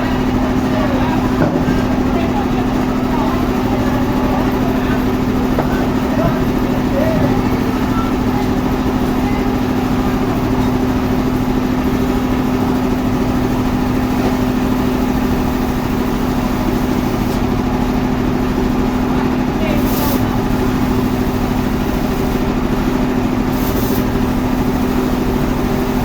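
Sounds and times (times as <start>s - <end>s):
sawmill machinery hum: 0.0s - 26.0s.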